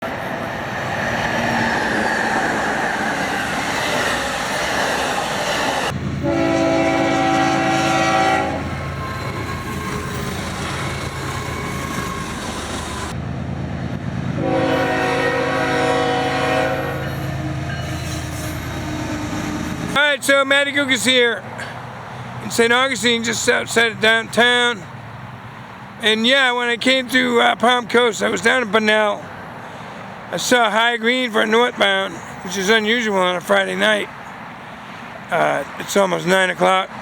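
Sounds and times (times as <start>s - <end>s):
train rumbling past: 0.0s - 26.5s
locomotive horn chord: 5.9s - 9.1s, 14.3s - 19.8s.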